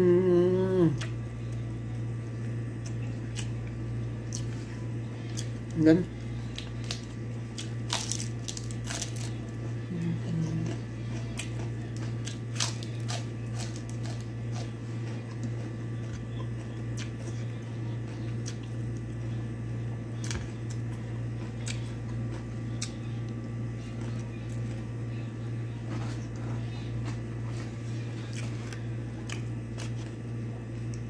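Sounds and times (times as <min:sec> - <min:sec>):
low hum: 0:00.0 - 0:31.0
wet sticky chewing: 0:06.4 - 0:19.0, 0:20.2 - 0:23.4, 0:28.2 - 0:31.0.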